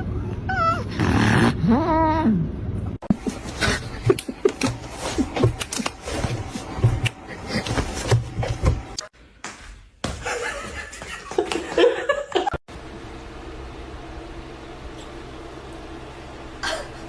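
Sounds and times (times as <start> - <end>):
person laughing: 3.1 - 5.9, 10.2 - 12.6, 16.6 - 17.0.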